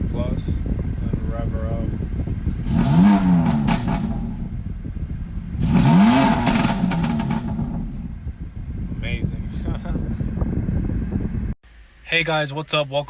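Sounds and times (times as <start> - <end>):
car engine revving: 2.4 - 9.5.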